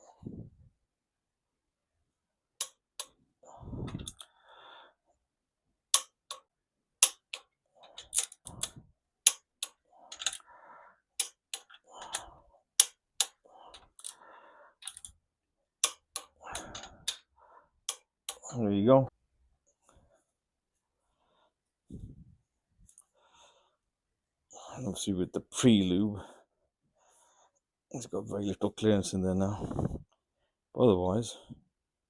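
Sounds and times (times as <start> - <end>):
socket wrench ratcheting: 15.8 - 17.2.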